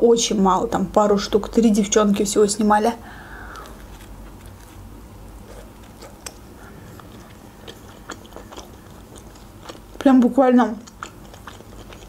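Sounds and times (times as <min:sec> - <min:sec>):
person chewing: 0:03.2 - 0:12.0.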